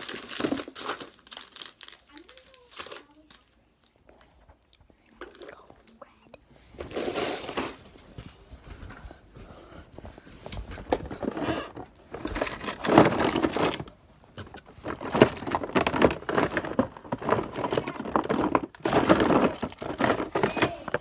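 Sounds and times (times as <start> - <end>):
containers and packets crinkling: 0.0 - 6.1, 10.6 - 21.0.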